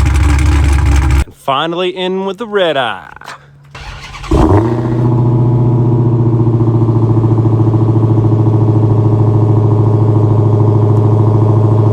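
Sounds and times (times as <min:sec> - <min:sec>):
car engine idling: 0:00.0 - 0:01.2, 0:03.7 - 0:11.9.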